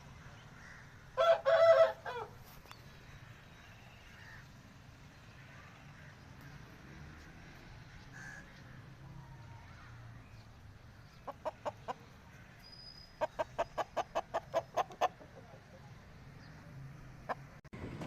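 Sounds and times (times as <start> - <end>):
chicken clucking: 13.2 - 15.9.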